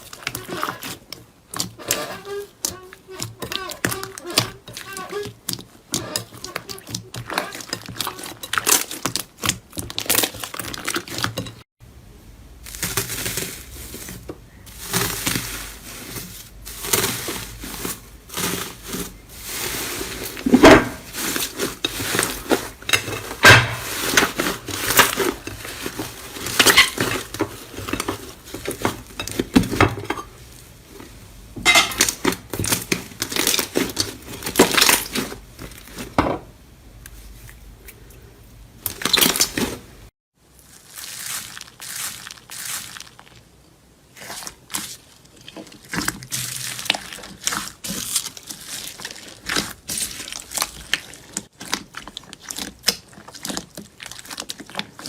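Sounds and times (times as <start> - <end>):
slime crackling and popping: 12.6 - 19.6, 44.2 - 55.0.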